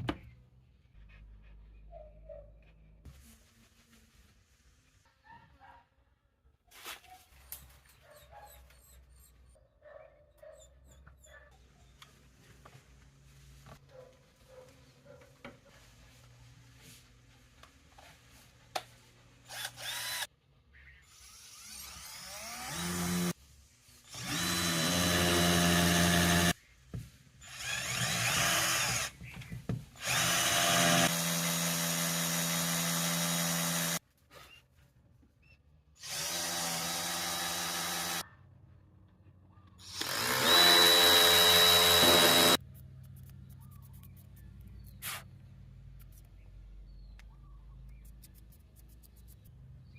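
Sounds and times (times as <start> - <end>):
power drill whining: 19.4 - 20.3, 21.2 - 23.4, 24.0 - 26.6, 27.4 - 29.2, 30.0 - 34.0, 36.0 - 38.2, 39.8 - 42.6.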